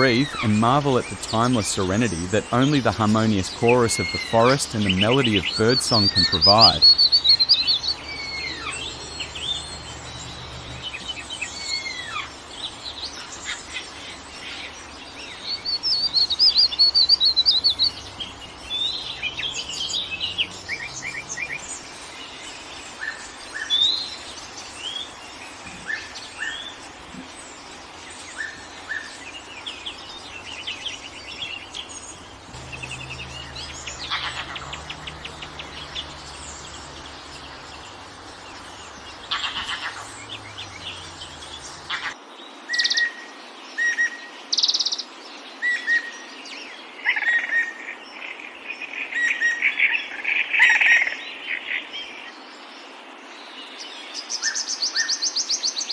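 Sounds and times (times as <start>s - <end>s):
fast loud bird trill: 0.0s - 14.0s, 14.6s - 22.3s, 30.0s - 42.2s
songbirds singing and chirping: 0.0s - 55.9s.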